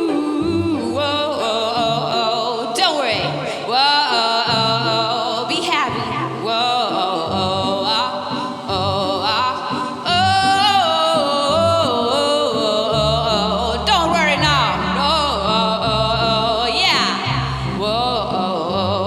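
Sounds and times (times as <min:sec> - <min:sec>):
singer's wordless vocal runs: 0:00.0 - 0:19.0
bass line: 0:08.7 - 0:19.0.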